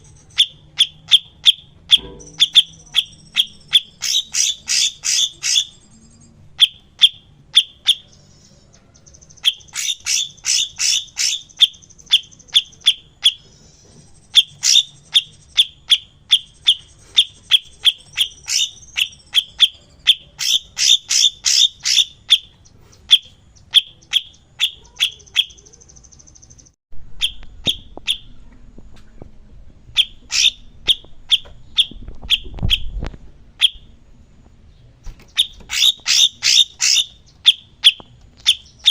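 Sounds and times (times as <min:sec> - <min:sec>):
songbird chirping and trilling: 0:00.0 - 0:29.2, 0:29.9 - 0:38.9
low rumble: 0:26.4 - 0:35.0.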